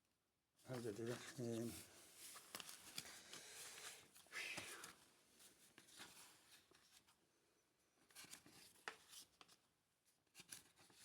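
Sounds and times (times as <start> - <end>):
paper rustling: 0.7 - 3.2.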